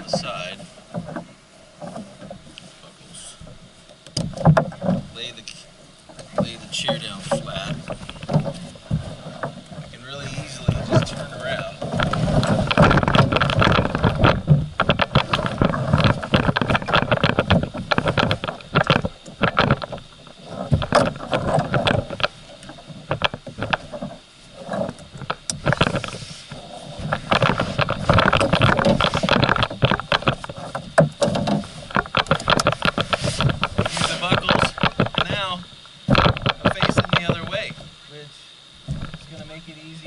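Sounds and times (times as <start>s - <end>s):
knocks and scrapes in plastic kayak: 0.0s - 38.0s, 38.8s - 40.0s.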